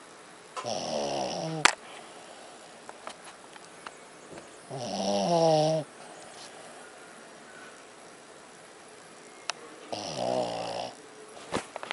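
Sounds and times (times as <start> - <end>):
dog snoring: 0.6 - 2.8, 4.7 - 6.4, 9.9 - 11.0.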